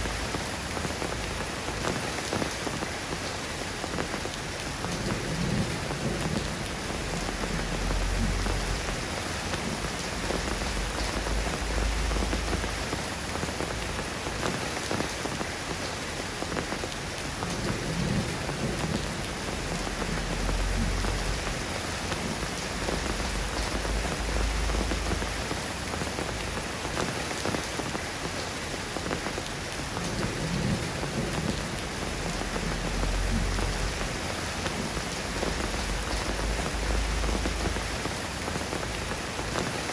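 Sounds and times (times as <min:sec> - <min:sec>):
steady rain falling: 0:00.0 - 0:39.9
low rumbles: 0:05.2 - 0:13.2, 0:17.7 - 0:26.9, 0:30.4 - 0:39.3.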